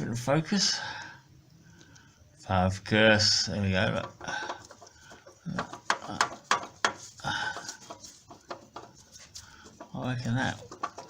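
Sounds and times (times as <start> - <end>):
pulley clicks and knocks: 3.9 - 11.0.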